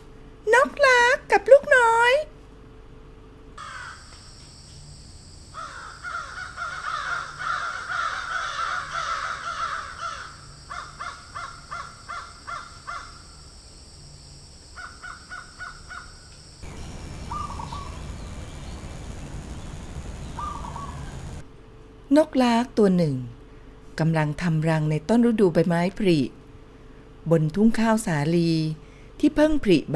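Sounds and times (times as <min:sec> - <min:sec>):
birds calling: 0:05.6 - 0:13.4, 0:14.8 - 0:21.4.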